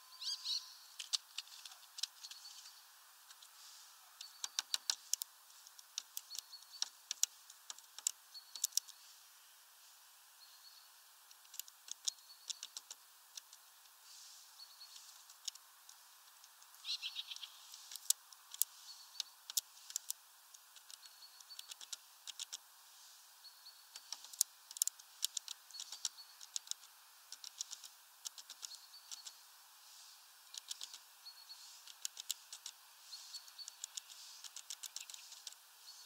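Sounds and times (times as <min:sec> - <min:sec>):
small bird calling high notes: 0:00.0 - 0:00.9
sharp ticks and taps: 0:04.2 - 0:09.0, 0:11.3 - 0:13.6, 0:14.9 - 0:22.6, 0:23.9 - 0:29.4, 0:30.5 - 0:31.0, 0:31.8 - 0:32.8, 0:33.4 - 0:35.6.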